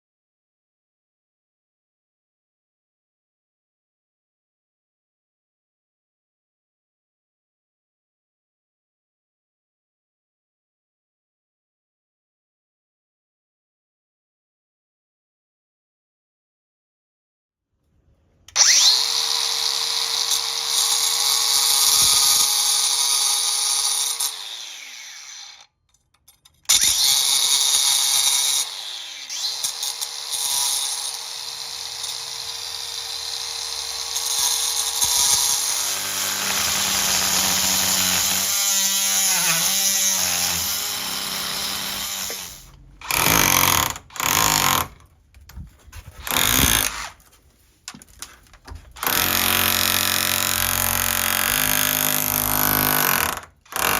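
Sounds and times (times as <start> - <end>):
oscillating multi-tool cutting: 18.5 - 25.7, 26.7 - 45.0.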